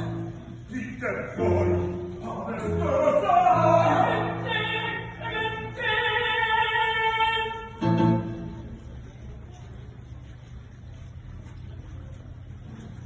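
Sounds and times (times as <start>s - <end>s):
operatic singing: 0.0s - 7.9s.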